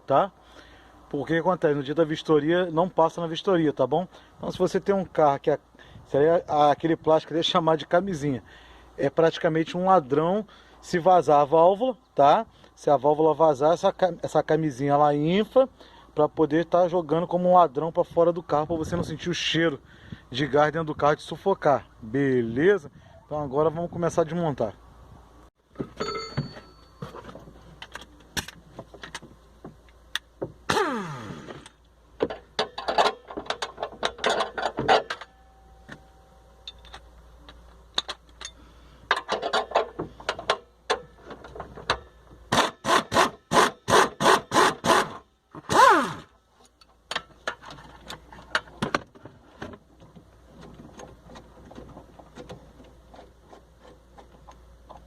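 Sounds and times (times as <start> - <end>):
metal clicks knocks and scrapes: 31.6 - 36.0, 36.7 - 42.1, 46.6 - 55.0.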